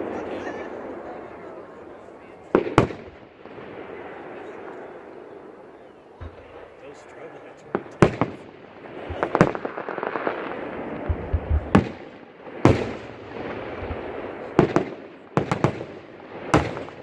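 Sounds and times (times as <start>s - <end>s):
firework bangs: 0.0s - 17.0s
crackle of bursting shells: 7.8s - 13.7s.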